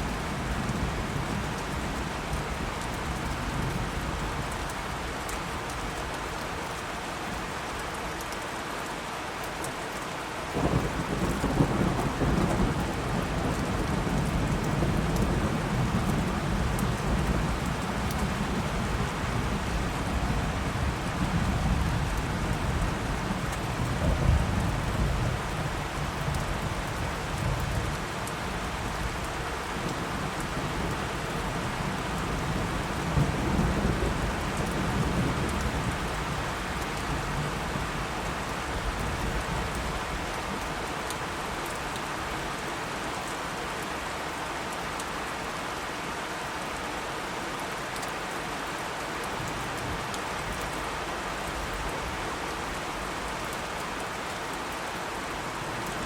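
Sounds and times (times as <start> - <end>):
steady rain falling: 0.0 - 56.0
thunder rumbling: 10.6 - 25.8.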